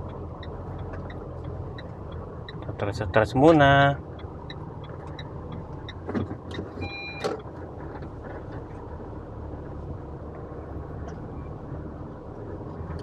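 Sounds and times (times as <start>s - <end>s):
car engine and road rumble: 0.0s - 13.0s
short electronic beep: 6.8s - 7.3s.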